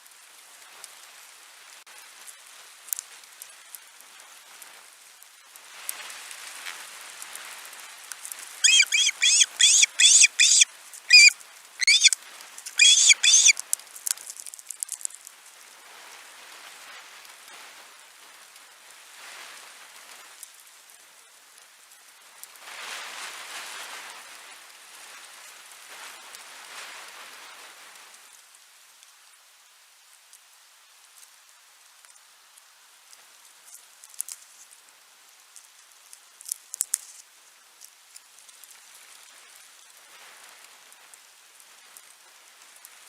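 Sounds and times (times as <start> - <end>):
rain pattering: 0.0 - 43.0
bird sharp high calls: 8.6 - 12.2, 12.8 - 13.6.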